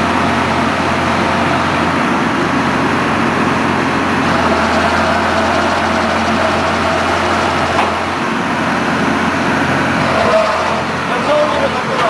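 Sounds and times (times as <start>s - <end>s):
drilling rig engine running: 0.0s - 12.0s.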